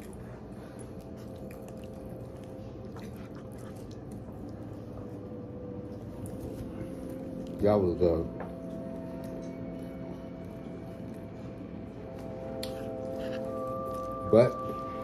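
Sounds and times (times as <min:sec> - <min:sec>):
person chewing chips: 0:00.0 - 0:04.7, 0:08.8 - 0:14.9
low hum: 0:00.0 - 0:15.0.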